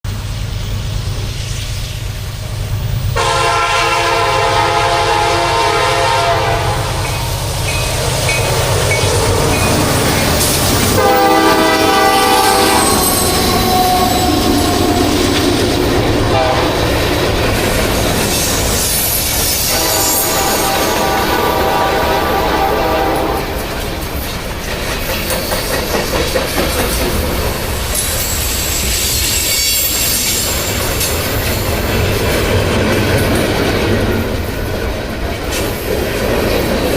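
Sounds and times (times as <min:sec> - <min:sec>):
train air horn: 0:03.2 - 0:07.3, 0:10.8 - 0:17.0, 0:19.5 - 0:23.8.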